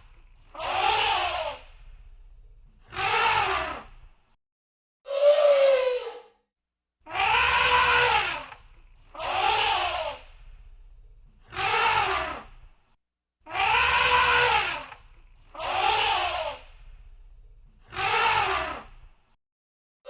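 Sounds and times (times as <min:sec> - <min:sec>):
elephant trumpeting: 0:07.1 - 0:08.6, 0:13.5 - 0:15.0.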